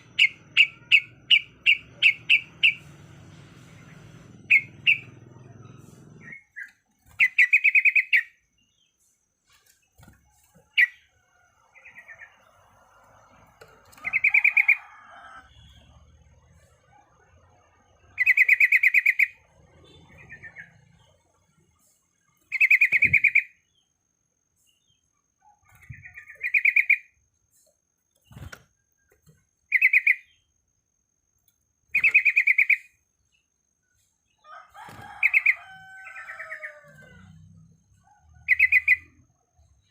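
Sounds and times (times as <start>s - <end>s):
bulbul singing: 0.0s - 3.0s, 3.8s - 8.9s, 22.5s - 23.8s, 29.7s - 30.5s, 31.9s - 33.0s, 38.4s - 39.2s.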